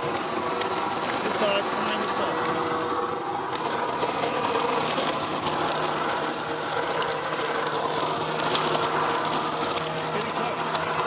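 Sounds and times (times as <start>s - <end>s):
vacuum blower running: 0.0s - 11.0s.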